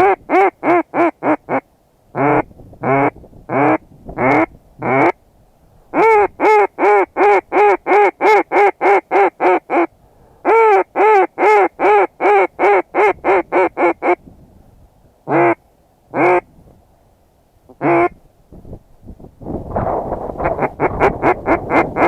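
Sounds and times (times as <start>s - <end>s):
duck call quacks: 0.0s - 1.6s, 2.2s - 5.2s, 5.9s - 14.2s, 15.3s - 16.5s, 17.7s - 18.2s, 20.4s - 22.0s.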